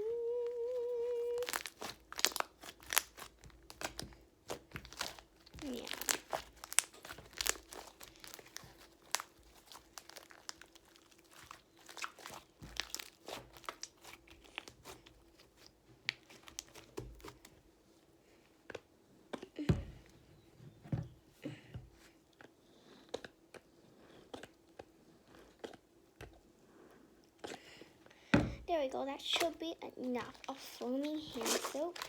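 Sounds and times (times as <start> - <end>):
slime wet crackles and squishes: 1.3 - 17.6, 28.7 - 32.0.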